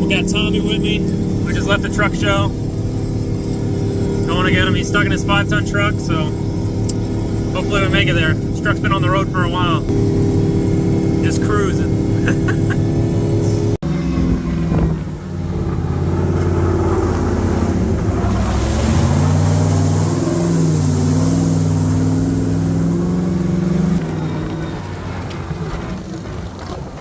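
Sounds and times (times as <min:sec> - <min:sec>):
truck engine running: 0:00.0 - 0:27.0
rushing noise: 0:10.0 - 0:27.0.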